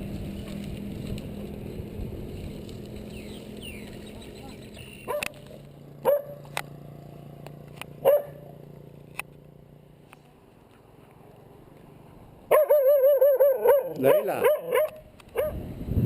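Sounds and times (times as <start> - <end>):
dog barking: 5.1 - 5.4, 6.0 - 6.4, 8.0 - 8.5, 12.5 - 15.6.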